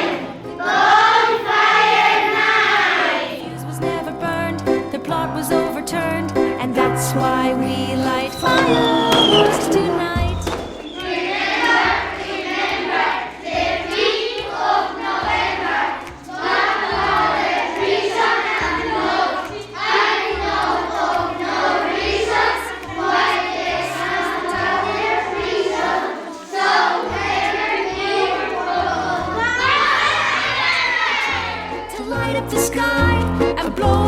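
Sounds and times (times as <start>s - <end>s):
children singing: 0.0s - 34.0s.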